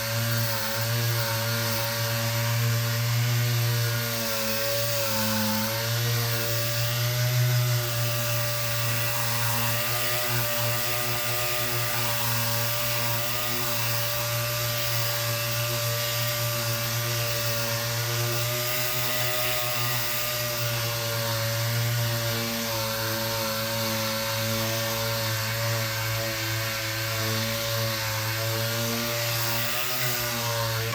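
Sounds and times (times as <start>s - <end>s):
electric power sander running: 0.0s - 30.9s.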